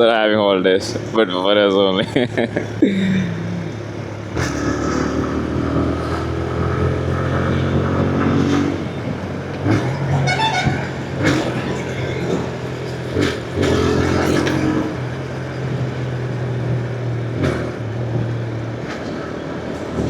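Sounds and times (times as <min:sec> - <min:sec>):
motorcycle engine running: 0:00.0 - 0:20.0
road and wind noise: 0:00.0 - 0:20.0.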